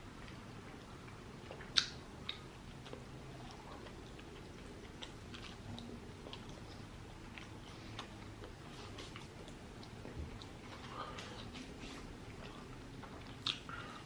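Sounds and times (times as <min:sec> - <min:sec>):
person chewing food: 0:00.1 - 0:14.0
wet mouth clicks: 0:01.5 - 0:03.6, 0:13.4 - 0:13.8.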